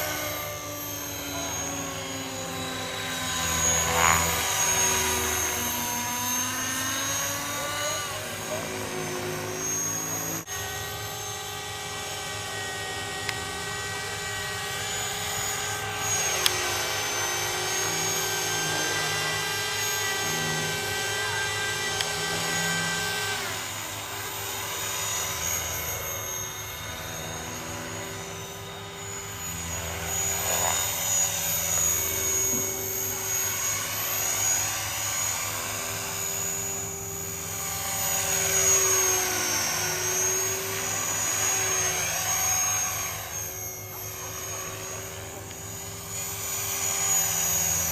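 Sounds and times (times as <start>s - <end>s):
model helicopter whine: 0.0s - 47.9s.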